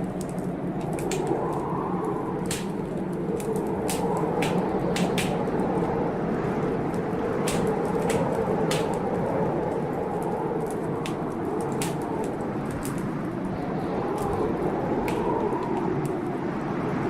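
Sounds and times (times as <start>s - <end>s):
storm noise: 0.0s - 17.0s
wood fire crackling: 0.0s - 17.0s.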